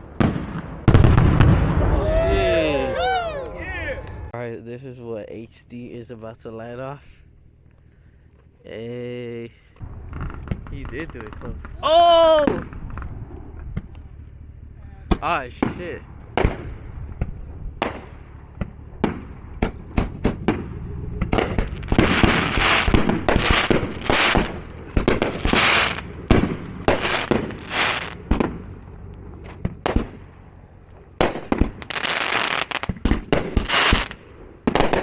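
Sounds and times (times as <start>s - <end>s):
fireworks bangs: 0.0s - 3.1s, 9.8s - 14.2s, 15.1s - 28.8s, 29.6s - 30.3s, 31.2s - 35.0s
fireworks hissing bursts: 21.4s - 28.3s, 31.6s - 34.2s.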